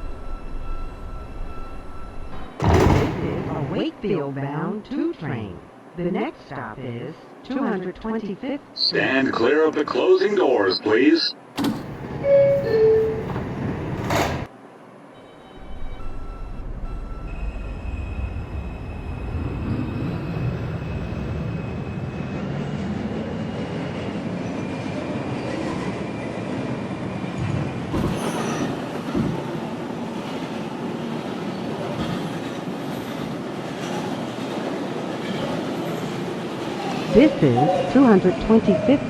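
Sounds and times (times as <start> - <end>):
train motor whine: 11.6 - 14.5.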